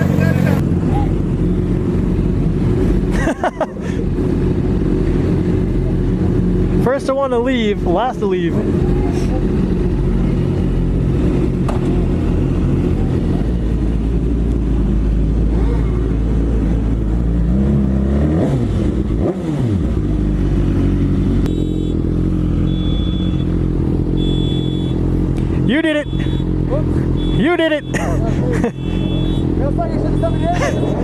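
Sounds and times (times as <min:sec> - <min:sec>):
motorcycle engine running: 0:00.0 - 0:31.0
passing engine: 0:00.0 - 0:31.0
high beep: 0:21.5 - 0:22.0, 0:22.6 - 0:23.6, 0:24.2 - 0:25.0.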